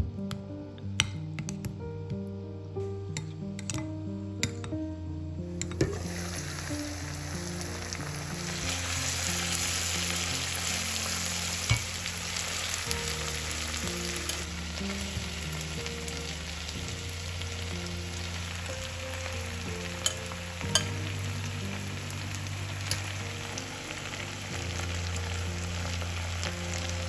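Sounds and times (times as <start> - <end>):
food sizzling in oil: 5.8 - 27.0.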